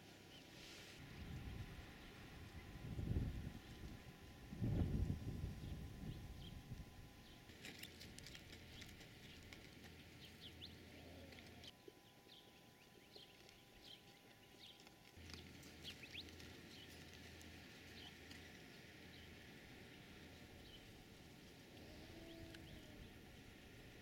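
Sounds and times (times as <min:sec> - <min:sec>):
small birds chirping: 0:04.7 - 0:23.7.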